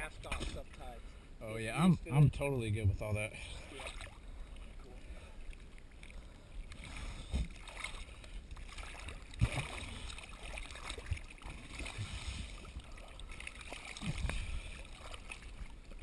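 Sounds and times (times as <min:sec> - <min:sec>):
water sloshing and lapping: 0:00.0 - 0:01.0, 0:02.1 - 0:16.0.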